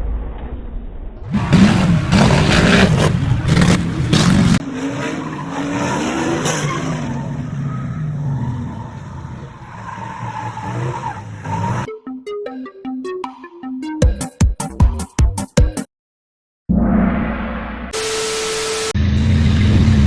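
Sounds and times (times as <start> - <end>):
car engine revving: 1.3 - 11.9
tyre noise: 1.3 - 11.9
electronic music: 11.8 - 15.8.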